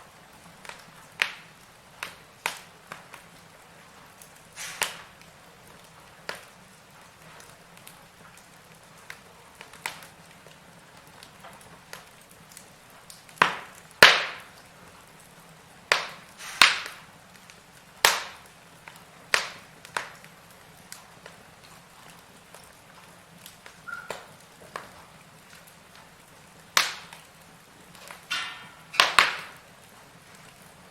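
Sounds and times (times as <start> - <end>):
faint steady hiss: 0.0 - 30.9
fire crackling and popping: 0.0 - 30.9.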